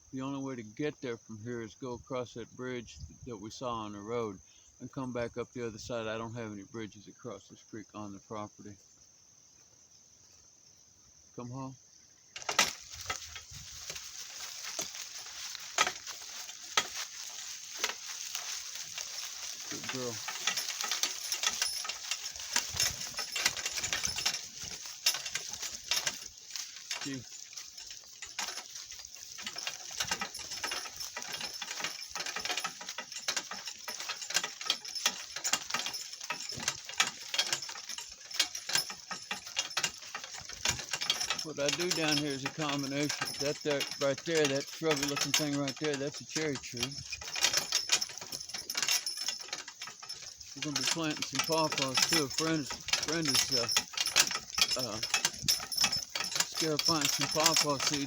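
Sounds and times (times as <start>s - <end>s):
cart rolling over rough ground: 12.3s - 58.0s.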